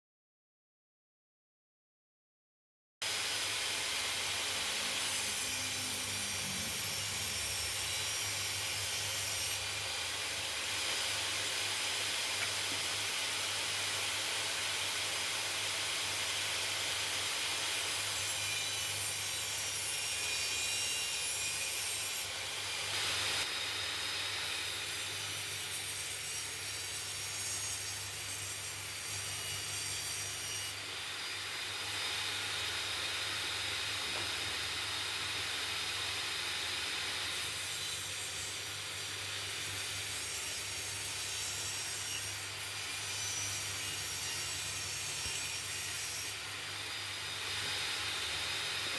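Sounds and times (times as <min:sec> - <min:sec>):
electric power tool whirring: 0:03.0 - 0:29.5, 0:30.3 - 0:48.9.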